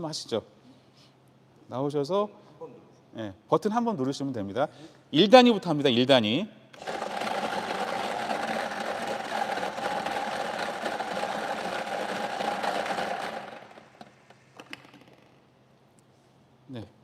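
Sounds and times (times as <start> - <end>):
lottery machine whirring and rattling: 6.8 - 14.8.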